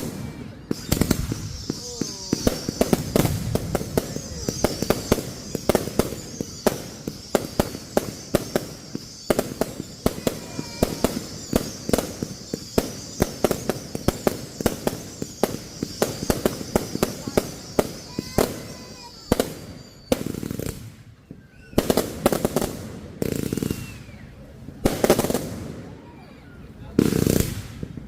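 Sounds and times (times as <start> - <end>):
steady high hiss: 0.0 - 21.0
fireworks bangs: 0.0 - 28.0.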